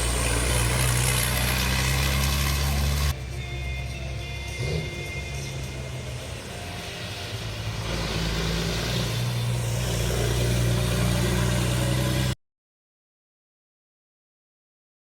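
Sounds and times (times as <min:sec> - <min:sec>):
diesel truck engine under load: 0:00.0 - 0:03.2.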